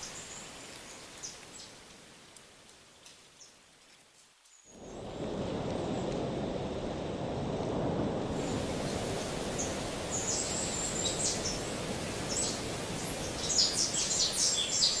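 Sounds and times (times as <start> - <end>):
outdoor background hiss: 0.0 - 15.0
birds chirping: 8.8 - 15.0.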